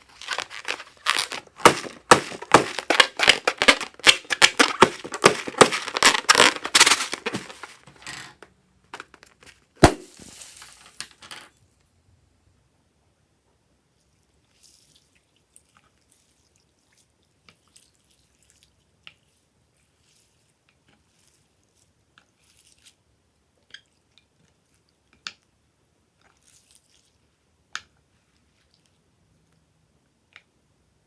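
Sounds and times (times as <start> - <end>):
slime squished by hand: 0.0 - 7.9.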